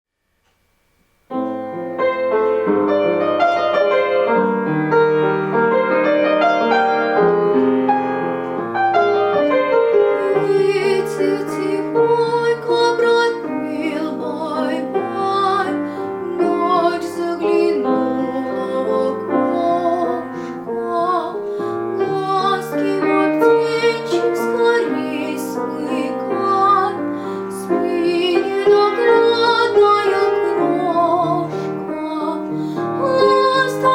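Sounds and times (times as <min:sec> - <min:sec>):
piano lullaby: 0:01.3 - 0:33.9
girl singing: 0:10.2 - 0:33.9.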